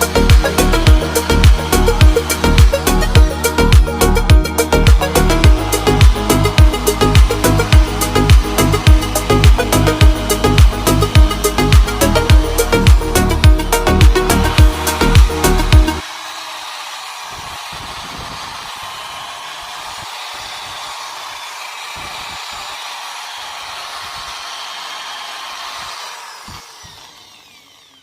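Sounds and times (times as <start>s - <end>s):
car engine whirring: 0.0s - 20.2s.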